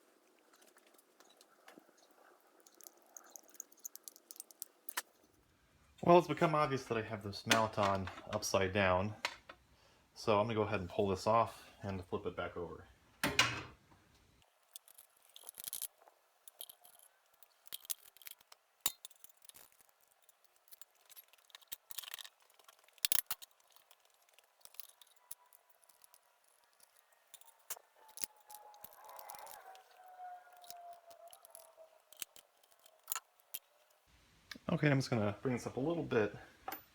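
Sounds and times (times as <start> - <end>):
metal tools clinking: 0.6 - 5.3, 14.4 - 34.0.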